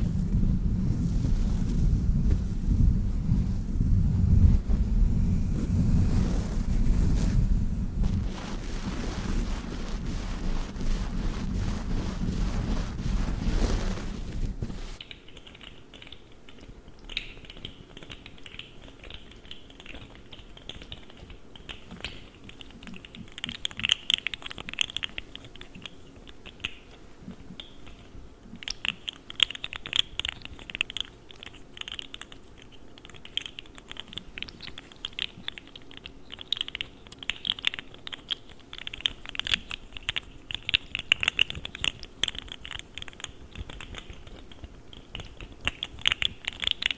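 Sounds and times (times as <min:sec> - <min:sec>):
gloves rubbing: 0:00.0 - 0:15.0.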